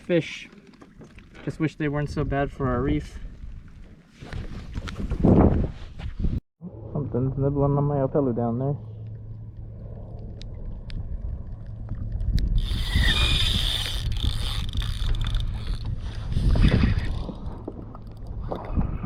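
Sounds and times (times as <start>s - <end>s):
water sounds: 0.0s - 5.2s, 6.6s - 19.0s
wind noise: 2.0s - 7.0s, 9.7s - 19.0s.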